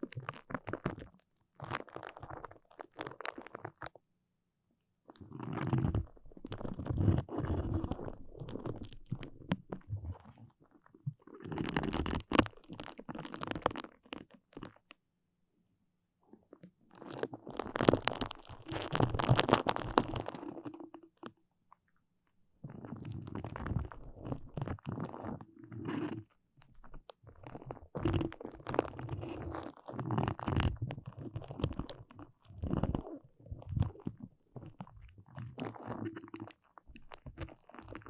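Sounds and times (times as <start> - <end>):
sticky material crackling: 0.0 - 3.9, 17.5 - 20.6.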